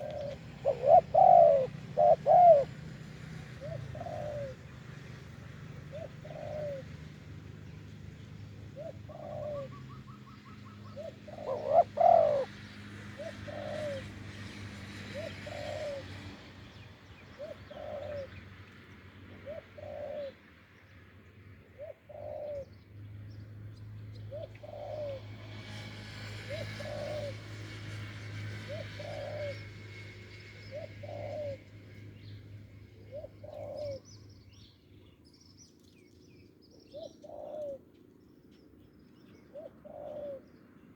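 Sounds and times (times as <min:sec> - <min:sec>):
small birds chirping: 0:00.0 - 0:02.7, 0:28.6 - 0:40.9
doves cooing: 0:00.0 - 0:07.3, 0:08.6 - 0:16.6, 0:17.3 - 0:18.5, 0:19.3 - 0:20.4, 0:21.8 - 0:22.7, 0:24.3 - 0:32.0, 0:32.8 - 0:34.2, 0:36.8 - 0:37.9, 0:39.4 - 0:40.5.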